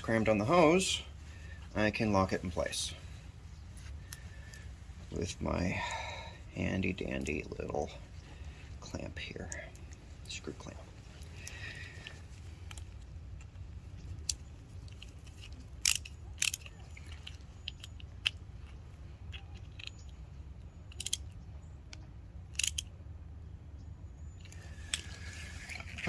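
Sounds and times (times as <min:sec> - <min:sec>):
steady low rumble: 0:00.0 - 0:26.0
hose clamp clicking and scraping: 0:11.2 - 0:22.9.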